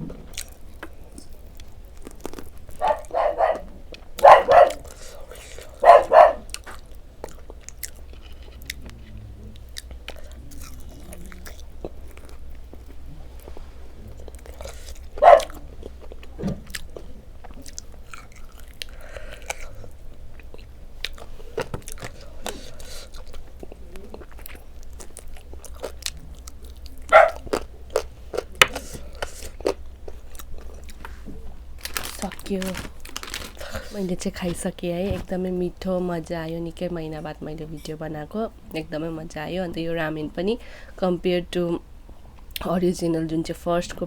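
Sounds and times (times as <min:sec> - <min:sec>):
chewing and crunchy bites: 0:00.1 - 0:34.5.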